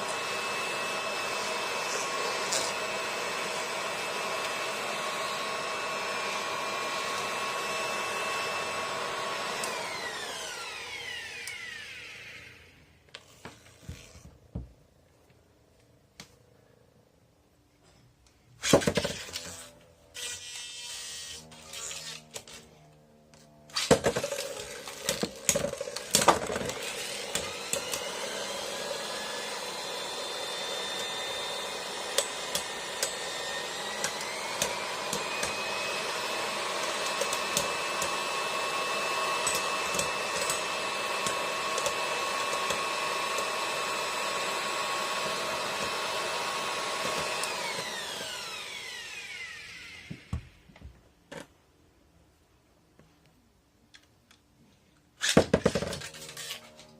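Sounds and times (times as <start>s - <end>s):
spinning top whirring: 23.7s - 50.1s.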